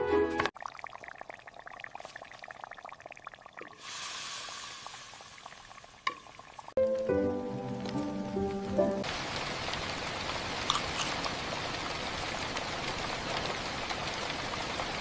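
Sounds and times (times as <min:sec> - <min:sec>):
sharp water drips: 0:00.5 - 0:06.8
gentle rain falling: 0:00.5 - 0:15.0.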